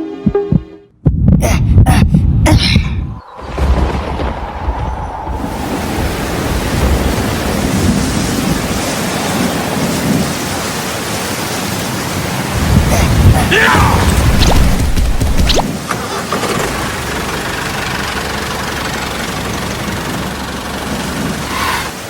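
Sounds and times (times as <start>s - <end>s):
steady rushing noise: 0.2s - 15.9s.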